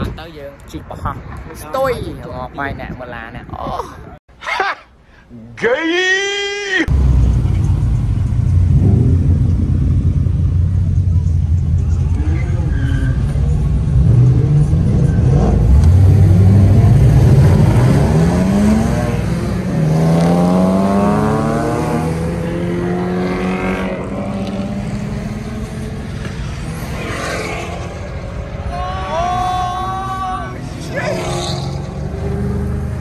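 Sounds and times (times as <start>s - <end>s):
sports car engine accelerating: 6.9s - 28.6s, 30.6s - 33.0s.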